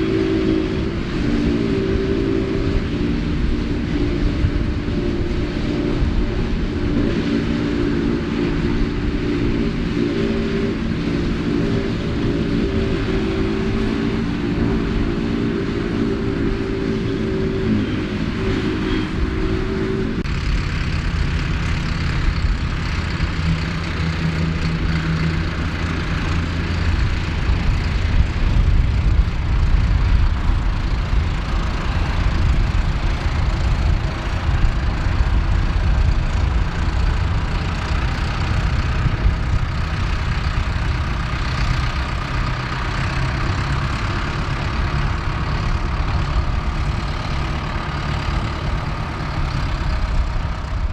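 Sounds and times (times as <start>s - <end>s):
forage harvester working: 0.0s - 50.9s
rushing noise: 0.0s - 50.9s
tractor engine running: 0.0s - 50.9s.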